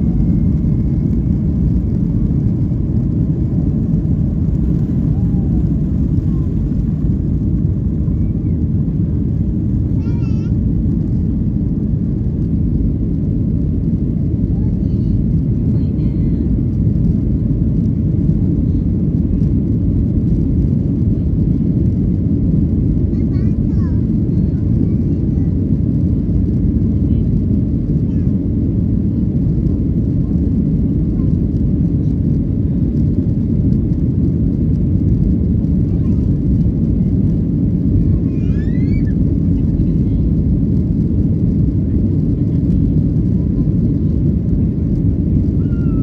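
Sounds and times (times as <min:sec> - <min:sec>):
rushing air: 0:00.0 - 0:09.9
jet engines in cabin: 0:00.0 - 0:46.0.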